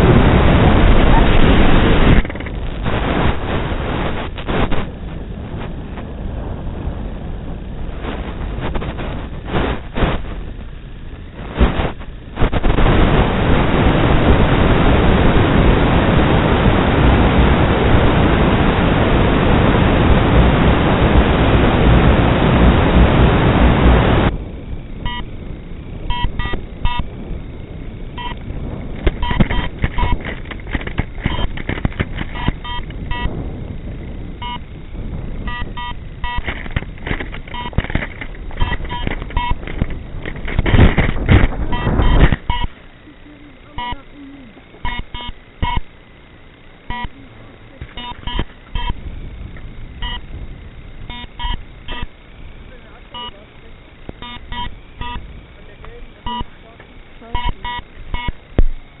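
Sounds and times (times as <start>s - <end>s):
loud static hiss: 0.0s - 59.0s
radio crackling: 0.0s - 59.0s
short high beeps: 25.1s - 25.3s, 26.1s - 27.1s, 28.2s - 28.4s, 29.2s - 30.2s, 32.4s - 33.3s, 34.4s - 34.6s, 35.5s - 36.5s, 41.7s - 42.7s, 44.8s - 45.9s, 46.9s - 47.2s, 47.9s - 49.0s, 50.0s - 50.2s, 51.1s - 52.1s, 53.1s - 53.4s, 54.2s - 55.2s, 56.2s - 56.5s, 57.3s - 58.4s.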